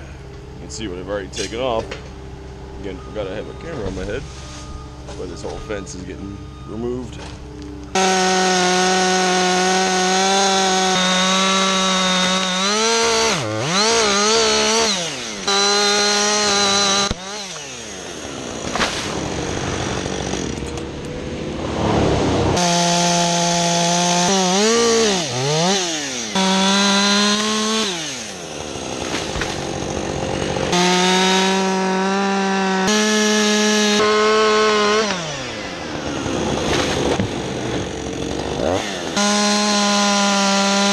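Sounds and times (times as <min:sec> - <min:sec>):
chainsaw cutting at full throttle: 0:07.9 - 0:40.9.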